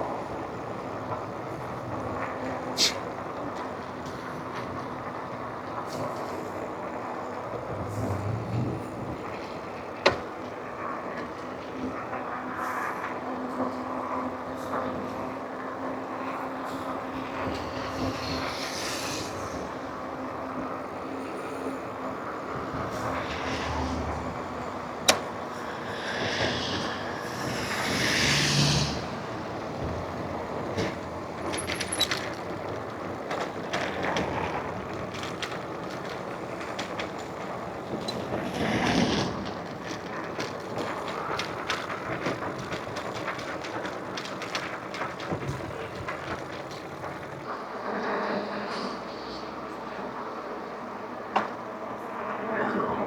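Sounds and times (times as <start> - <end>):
bike rattling: 21.6 - 47.5
wind rushing: 22.0 - 31.4.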